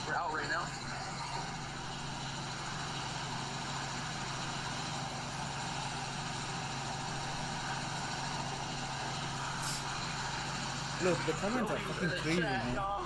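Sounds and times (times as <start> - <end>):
helicopter rotor and engine drone: 0.0 - 13.0
cabin hiss: 9.6 - 10.1.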